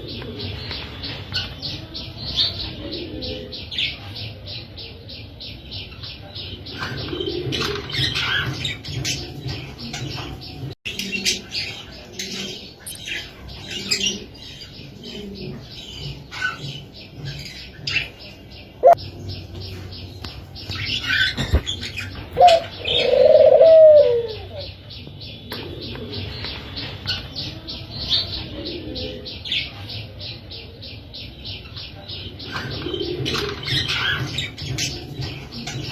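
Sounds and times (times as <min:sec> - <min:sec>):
doves chirping: 0:00.0 - 0:35.9
dove cooing: 0:06.7 - 0:09.4, 0:13.6 - 0:16.8, 0:22.4 - 0:24.7, 0:32.4 - 0:35.9.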